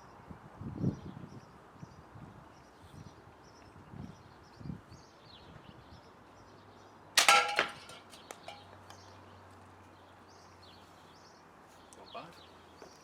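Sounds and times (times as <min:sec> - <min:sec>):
ball bearing clanging on can: 0:07.2 - 0:08.7.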